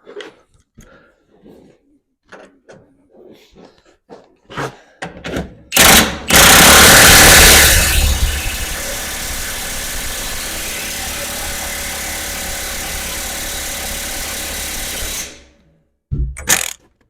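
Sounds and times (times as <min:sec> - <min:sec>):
impact wrench running: 0:05.8 - 0:15.6, 0:16.4 - 0:16.8.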